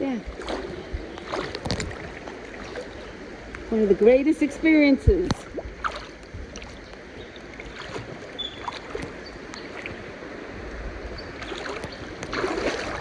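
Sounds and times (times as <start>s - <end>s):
river water flowing: 0.0s - 13.0s
small splashes: 0.2s - 3.8s, 5.2s - 10.2s, 11.3s - 13.0s.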